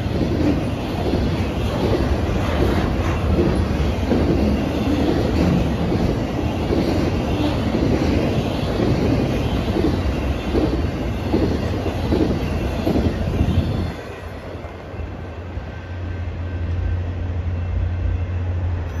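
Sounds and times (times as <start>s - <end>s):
train wheels clicking over rail joints: 0.0s - 13.4s.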